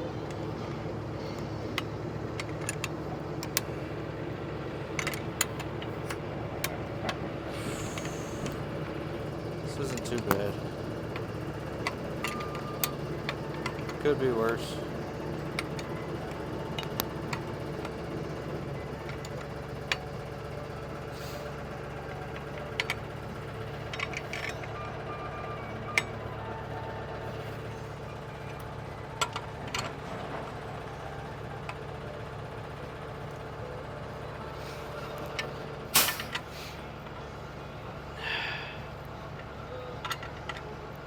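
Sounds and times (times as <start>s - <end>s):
steady machine hum: 0.0s - 41.0s
loud metal clank: 35.9s - 36.4s.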